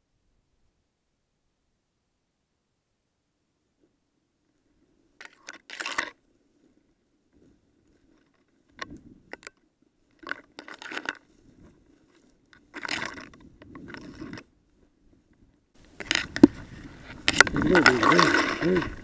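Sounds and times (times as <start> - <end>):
footsteps crunching in dry grass: 11.2 - 19.0.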